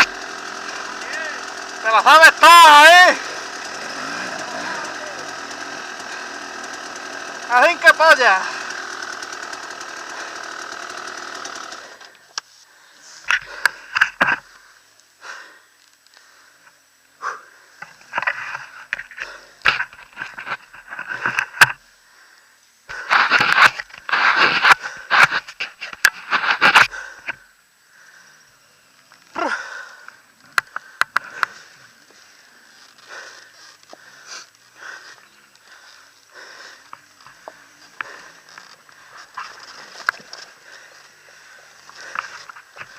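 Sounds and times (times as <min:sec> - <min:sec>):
motorcycle engine running: 0:00.0 - 0:12.4, 0:29.2 - 0:42.9.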